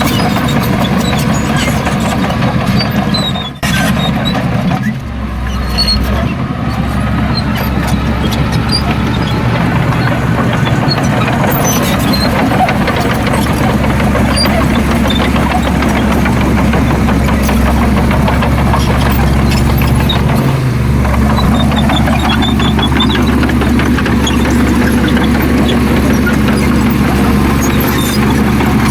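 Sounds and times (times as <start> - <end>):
heavy diesel machinery running: 0.0 - 28.9
sharp knocks and clatters: 6.8 - 28.9.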